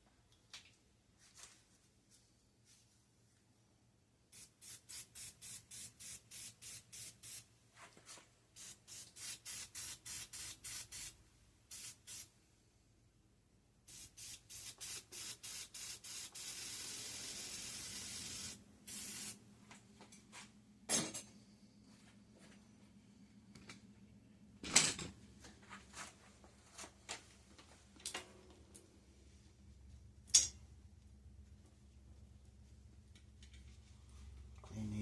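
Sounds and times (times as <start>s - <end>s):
aerosol can spraying: 4.3s - 7.4s, 8.6s - 12.3s, 13.9s - 19.4s.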